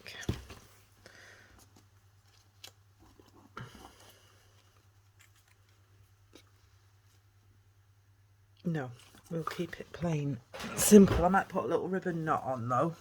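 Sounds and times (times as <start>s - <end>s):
paper and card rustling: 1.7s - 7.3s.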